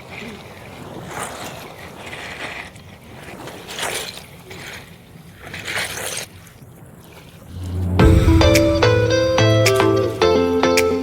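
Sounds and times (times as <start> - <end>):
faint low drone: 7.5 - 10.5
music: 7.5 - 11.0.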